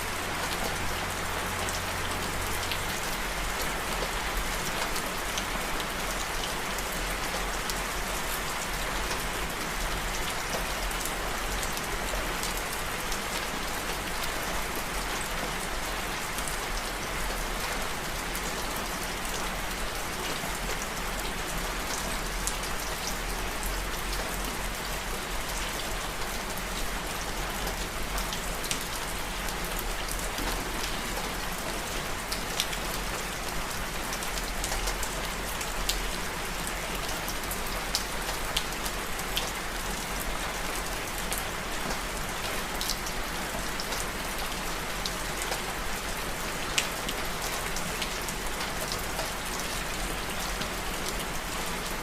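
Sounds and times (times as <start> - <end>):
steady rain hiss: 0.0 - 52.0.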